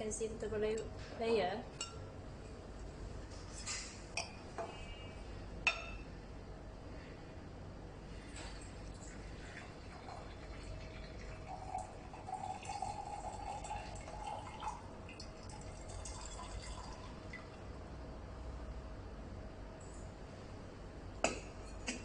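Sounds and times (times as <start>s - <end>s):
tea pouring trickle: 8.6s - 17.6s.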